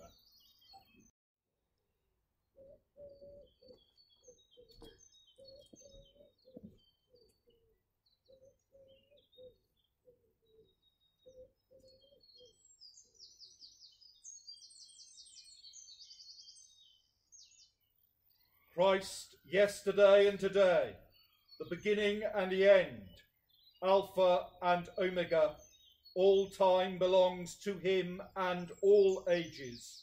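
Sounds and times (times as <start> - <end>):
songbirds chirping: 0.0 - 30.0.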